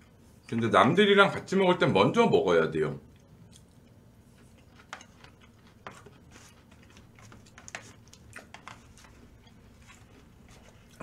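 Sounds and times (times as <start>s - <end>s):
faint chewing: 3.1s - 11.0s.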